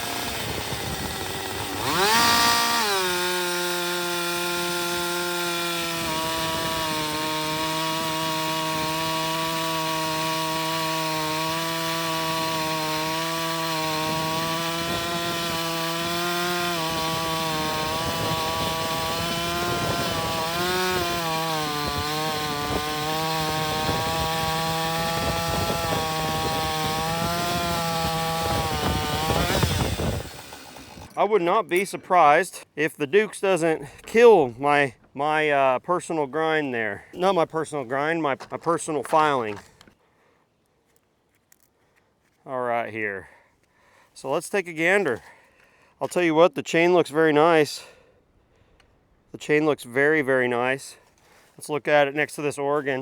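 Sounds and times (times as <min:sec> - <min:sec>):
chainsaw cutting wood: 0:00.0 - 0:31.2.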